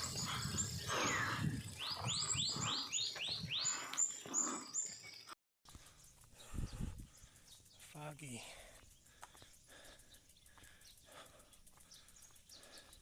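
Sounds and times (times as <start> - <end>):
bird singing rising chirps: 0.0 - 5.4
faint outdoor noise: 0.0 - 13.0.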